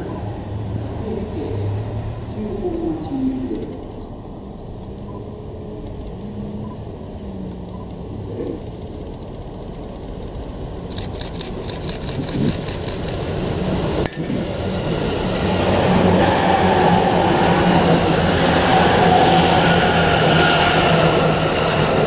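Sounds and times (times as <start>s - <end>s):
train hum: 0.0s - 22.0s
train wheels on rails: 5.8s - 22.0s.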